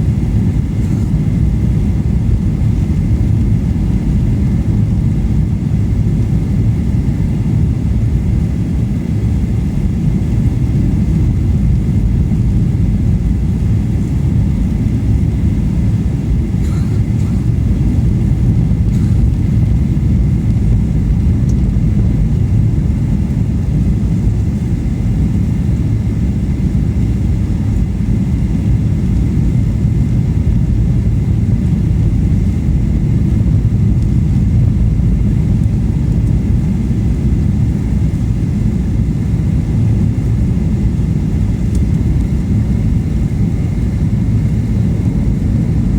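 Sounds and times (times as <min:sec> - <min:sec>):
airliner engines and airflow rumble: 0:00.0 - 0:45.9.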